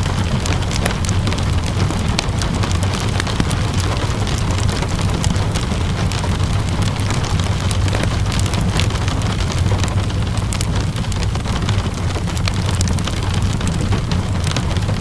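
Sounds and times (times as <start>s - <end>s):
steady rain: 0.0s - 15.0s
wood fire crackling and popping: 0.0s - 15.0s.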